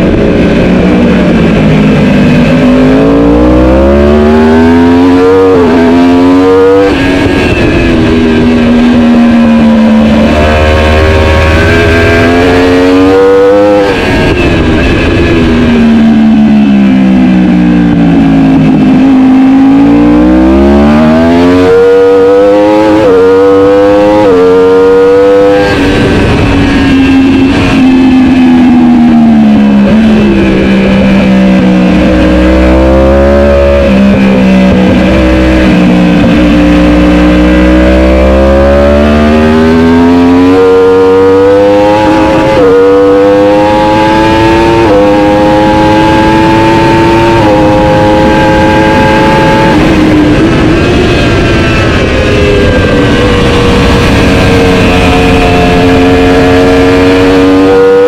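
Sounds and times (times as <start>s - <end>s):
racing motorcycle engine: 0.0s - 58.0s.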